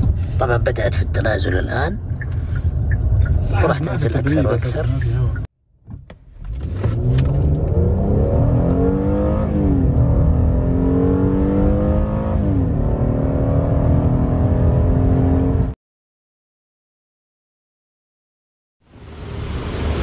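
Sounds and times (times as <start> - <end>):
car engine accelerating: 6.4 - 15.8.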